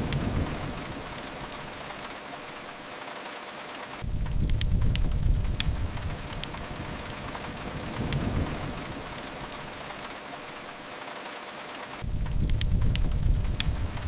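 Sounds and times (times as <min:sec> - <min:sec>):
steady rain: 0:00.0 - 0:14.0
wood fire crackling: 0:00.0 - 0:14.0
low rumble: 0:04.0 - 0:09.9, 0:12.0 - 0:14.0.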